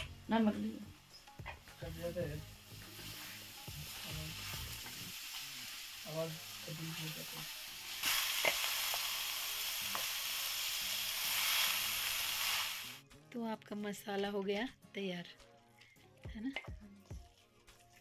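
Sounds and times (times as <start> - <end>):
filling sizzling in hot oil: 0.0 - 13.0.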